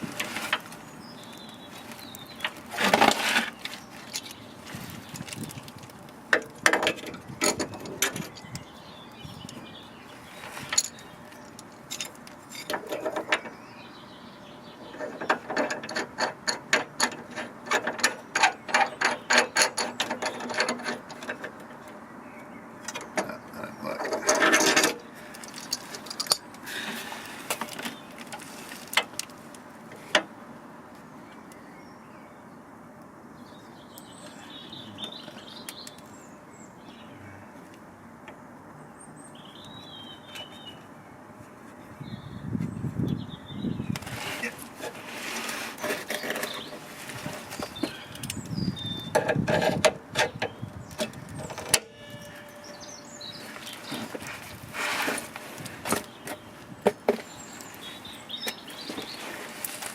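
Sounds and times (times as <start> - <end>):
hand tools clicking on metal: 15.0 - 21.6.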